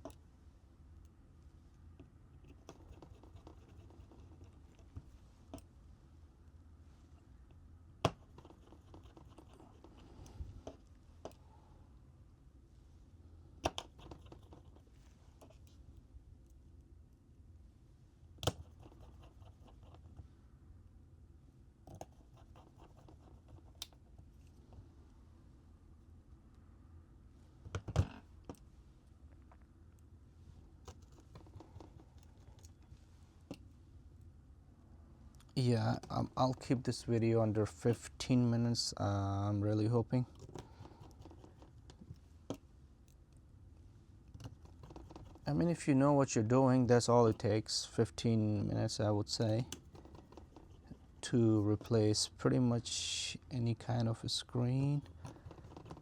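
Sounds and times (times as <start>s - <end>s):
small clicks and taps of tools: 0.0s - 0.2s, 4.8s - 5.7s, 7.5s - 11.4s, 13.6s - 14.8s, 30.8s - 33.7s, 55.0s - 56.0s.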